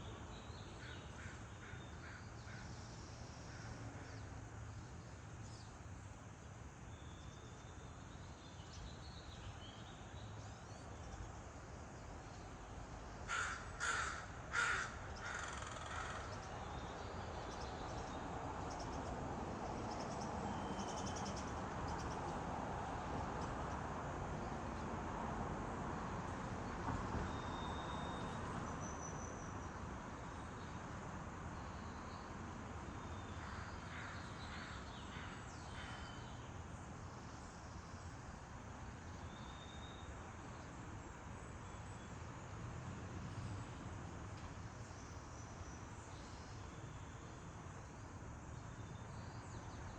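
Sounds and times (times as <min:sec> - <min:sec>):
steady background hiss: 0:00.0 - 0:49.9
crows cawing: 0:13.3 - 0:16.3.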